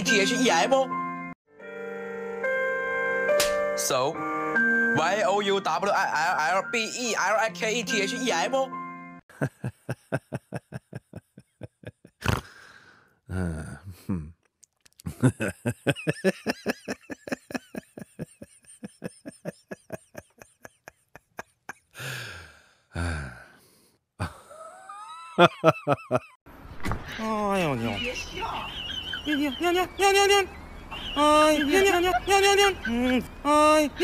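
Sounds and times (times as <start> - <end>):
person laughing hard: 9.3 - 12.5, 15.0 - 22.2, 24.2 - 26.4.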